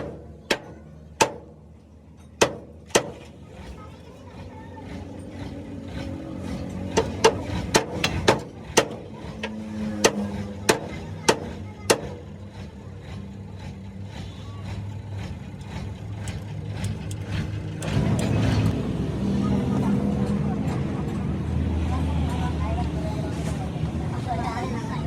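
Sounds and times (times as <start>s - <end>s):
hammer striking steel: 0.0s - 1.6s, 2.2s - 3.4s, 6.9s - 12.3s.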